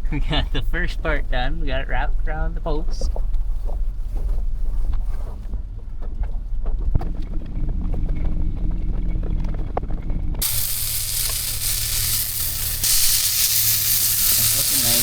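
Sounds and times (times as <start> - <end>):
meat sizzling in a frying pan: 10.4 - 15.0.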